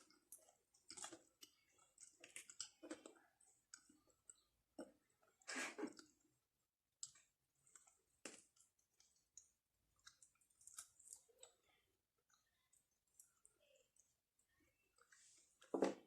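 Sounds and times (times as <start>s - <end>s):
people chewing with mouth clicks: 0.0s - 16.0s.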